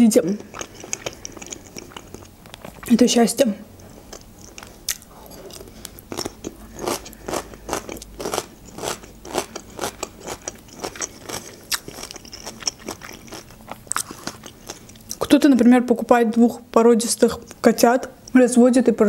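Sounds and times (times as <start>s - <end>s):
person chewing food: 0.3s - 3.0s, 3.7s - 15.3s, 17.4s - 18.4s.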